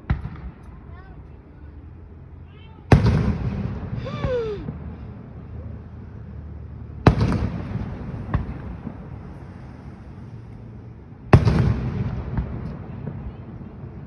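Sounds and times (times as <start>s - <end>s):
rolling rumble: 0.0s - 14.0s
loud firework bangs: 2.9s - 5.4s, 7.0s - 10.1s, 11.2s - 14.0s
small firework crack: 2.9s - 5.4s, 7.1s - 14.0s.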